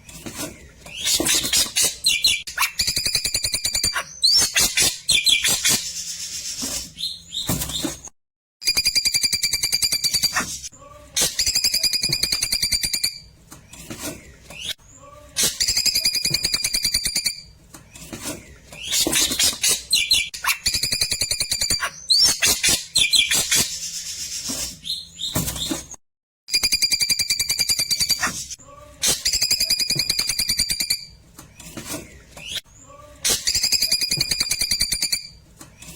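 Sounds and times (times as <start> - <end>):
bird sharp chirps: 0.9 - 6.3.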